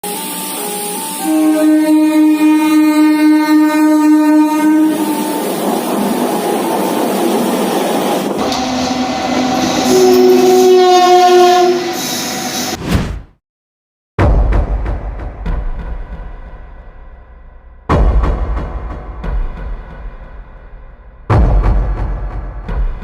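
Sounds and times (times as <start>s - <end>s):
second train horn: 0.0s - 7.8s, 8.4s - 12.8s
locomotive air horn: 0.0s - 12.8s
train passing: 0.0s - 12.8s.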